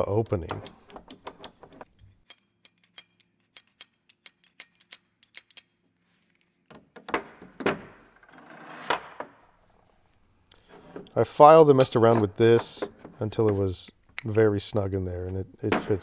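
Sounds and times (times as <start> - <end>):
small metal parts clicking: 0.4 - 6.5
metal parts rubbing: 0.5 - 6.6, 10.6 - 14.4.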